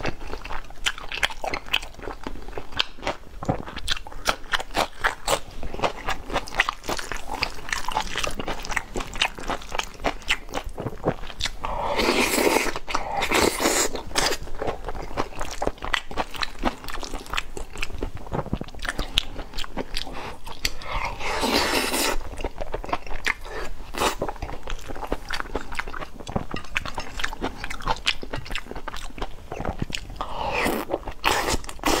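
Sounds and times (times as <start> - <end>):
chewing and crunching food: 0.0 - 32.0.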